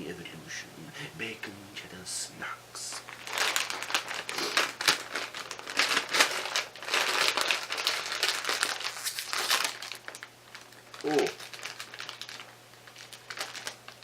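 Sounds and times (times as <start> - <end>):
chip bag crinkling: 2.8 - 14.0.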